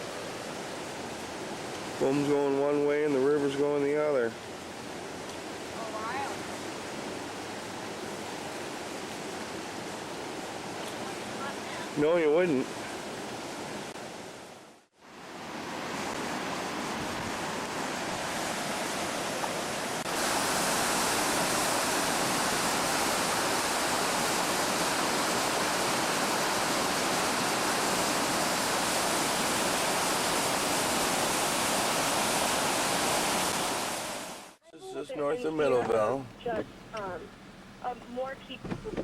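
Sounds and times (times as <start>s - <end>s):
river water rushing: 0.0s - 39.0s.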